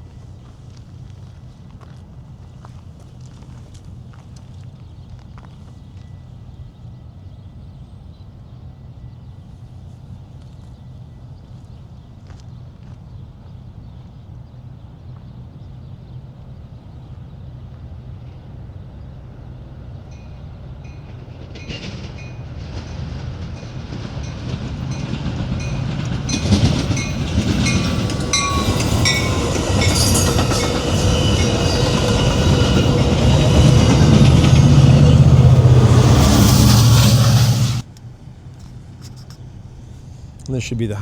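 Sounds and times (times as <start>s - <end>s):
passenger train approaching: 0.0s - 38.4s
wheels clacking over rails: 20.9s - 37.9s.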